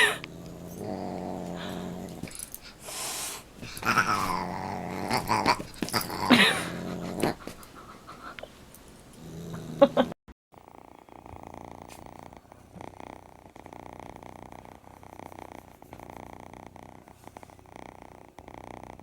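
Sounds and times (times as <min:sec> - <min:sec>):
dog growling: 0:00.0 - 0:02.9, 0:03.6 - 0:08.0, 0:09.2 - 0:10.1, 0:10.7 - 0:15.5.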